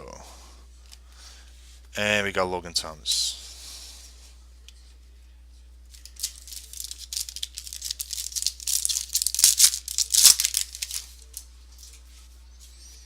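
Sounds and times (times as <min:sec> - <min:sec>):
foil wrapper crinkling and tearing: 0:05.9 - 0:11.4.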